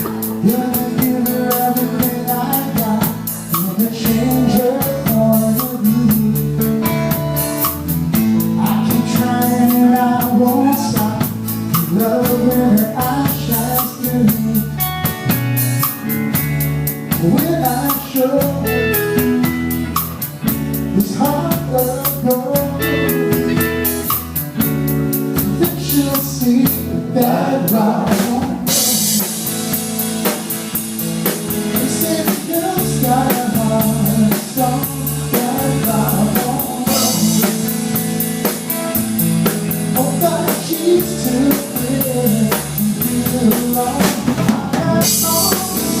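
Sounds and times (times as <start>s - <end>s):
person singing: 0.0s - 6.9s, 8.3s - 15.3s, 17.1s - 19.5s, 20.9s - 24.1s, 25.4s - 29.7s, 31.7s - 38.0s, 39.9s - 46.0s
drum kit: 0.0s - 46.0s
guitar: 0.0s - 46.0s.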